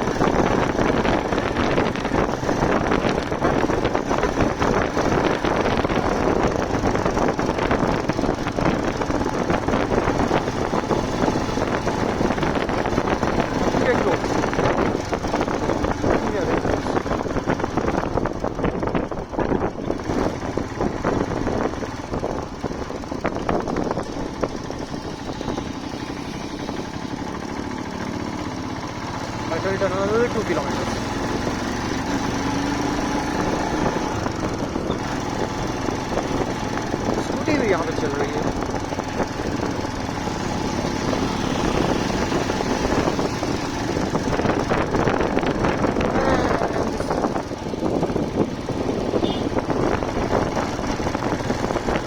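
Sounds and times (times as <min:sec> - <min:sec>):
motorcycle engine riding: 0:00.0 - 0:52.0
road and wind noise: 0:00.0 - 0:52.0.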